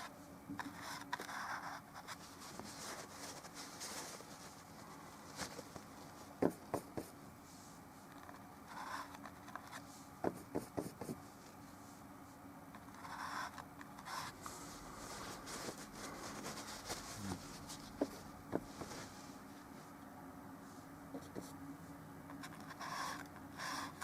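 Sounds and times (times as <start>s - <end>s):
paint brush scraping on canvas: 13.0s - 19.4s.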